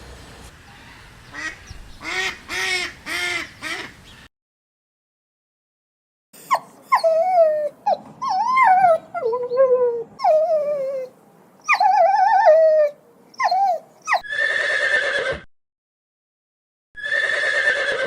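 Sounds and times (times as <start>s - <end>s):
dog whining and yipping: 6.4s - 14.3s
horse neighing: 14.2s - 15.5s, 17.0s - 18.0s.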